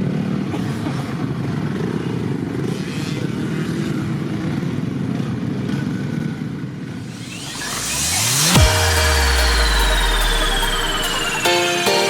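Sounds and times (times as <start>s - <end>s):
motocross bike engines droning: 0.0s - 11.5s
engine rising in pitch: 7.0s - 12.0s.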